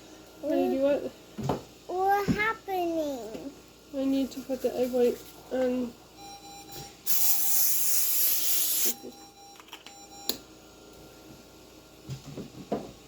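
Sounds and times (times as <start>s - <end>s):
aerosol spray hissing: 7.1s - 9.0s.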